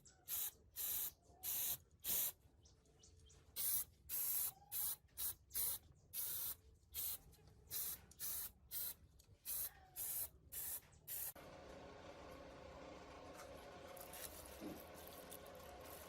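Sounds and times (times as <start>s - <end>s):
spray nozzle hissing bursts: 0.3s - 2.3s, 3.6s - 11.4s.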